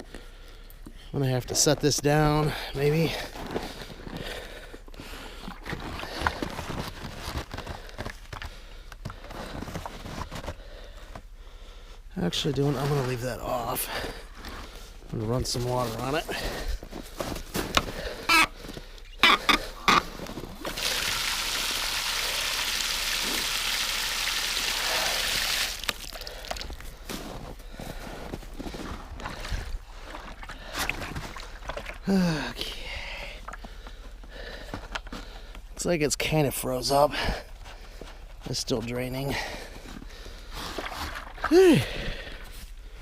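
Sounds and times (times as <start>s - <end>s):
water running splashing stream: 20.0s - 26.8s.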